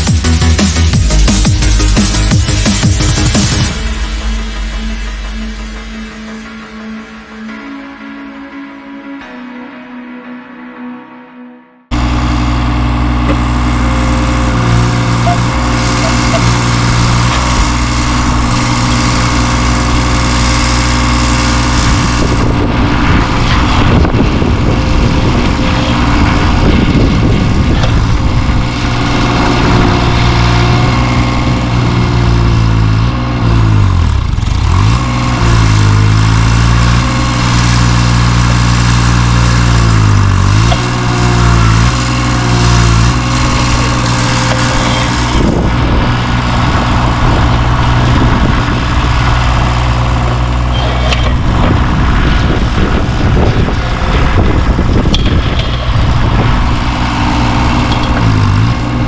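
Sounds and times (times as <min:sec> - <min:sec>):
work machine engine labouring: 0:11.9 - 0:59.0.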